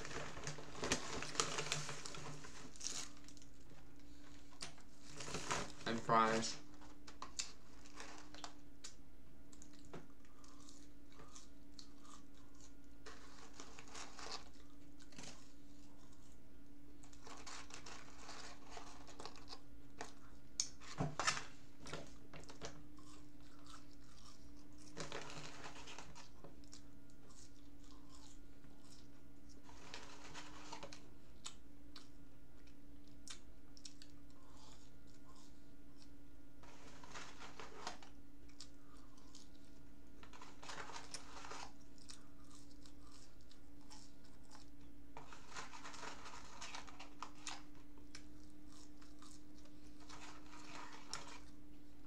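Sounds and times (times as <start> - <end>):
chewing french fries: 0.0 - 52.0.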